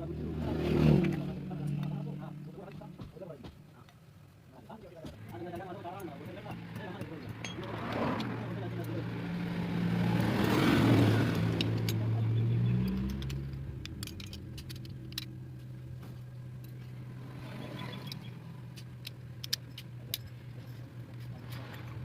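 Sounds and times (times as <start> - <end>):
engine humming: 0.0 - 22.0
light metallic clicks and taps: 12.8 - 17.0, 17.8 - 22.0.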